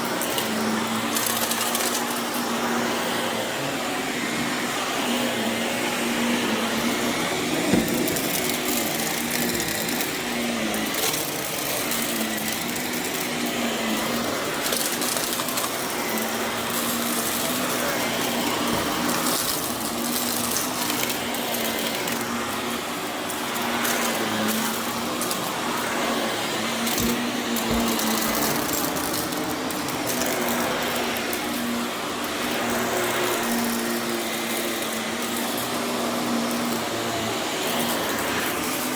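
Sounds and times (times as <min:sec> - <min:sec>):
vacuum cleaner running on carpet: 0:00.0 - 0:38.9
debris crackling in vacuum: 0:14.0 - 0:22.2, 0:26.7 - 0:31.7.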